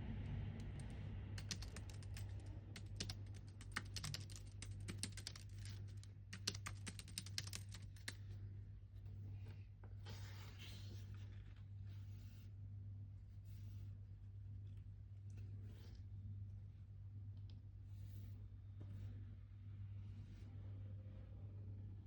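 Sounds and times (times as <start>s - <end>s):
steady low hum: 0.0s - 22.0s
keyboard keystroke clicks: 1.4s - 5.7s.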